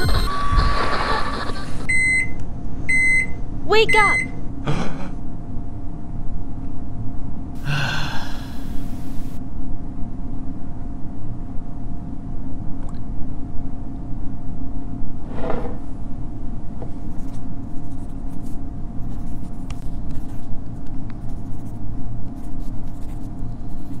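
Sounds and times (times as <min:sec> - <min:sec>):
faint constant hum: 0:00.0 - 0:24.0
low room rumble: 0:00.0 - 0:24.0
pen writing on paper: 0:21.2 - 0:24.0.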